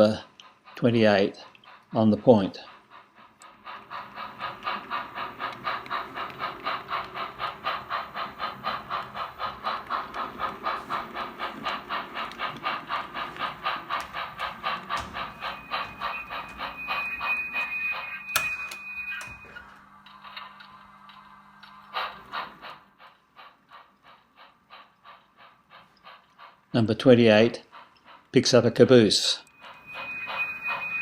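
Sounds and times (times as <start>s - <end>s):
model steam locomotive chuffing: 0.0s - 31.0s
steady high tone: 14.3s - 19.8s, 29.5s - 31.0s
sharp click: 18.4s - 19.6s.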